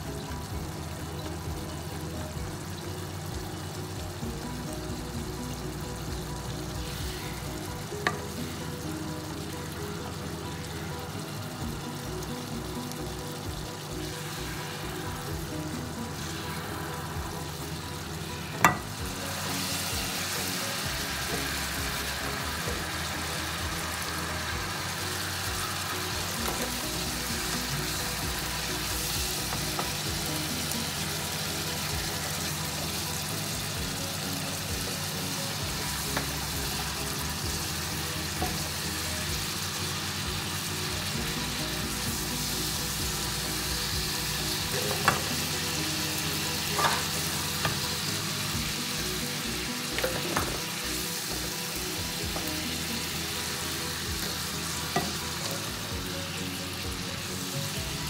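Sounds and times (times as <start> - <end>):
food sizzling in a frying pan: 0.0 - 58.0
spatula striking pan: 18.6 - 19.0.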